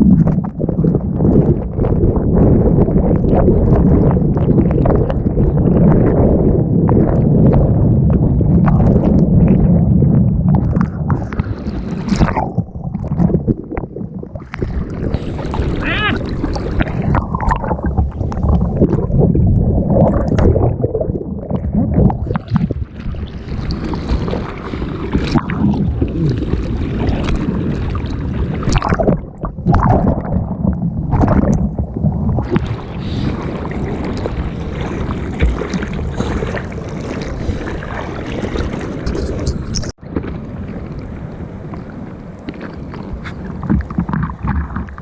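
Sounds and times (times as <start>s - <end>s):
wind buffeting microphone: 0.0s - 45.0s
seawater rushing and splashing: 11.1s - 13.4s, 14.4s - 19.3s, 21.9s - 45.0s.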